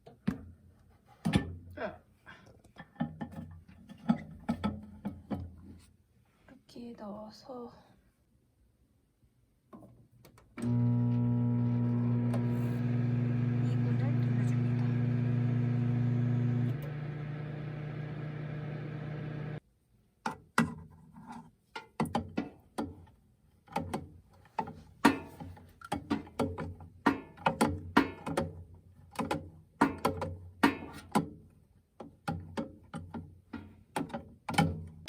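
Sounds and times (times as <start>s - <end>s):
microwave oven humming: 10.6s - 19.6s.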